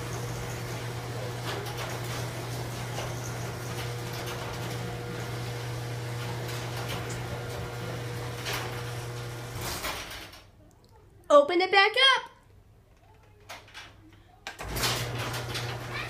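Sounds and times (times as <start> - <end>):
garage door opener motor hum: 0.0 - 10.4, 14.6 - 16.0.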